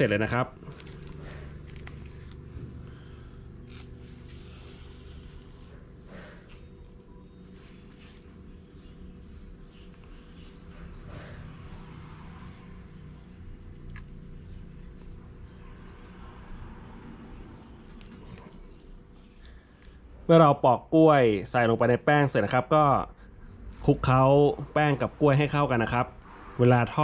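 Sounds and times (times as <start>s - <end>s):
low hum: 0.5s - 20.3s
small bird chirping: 1.2s - 2.3s, 2.9s - 16.4s, 17.2s - 20.0s.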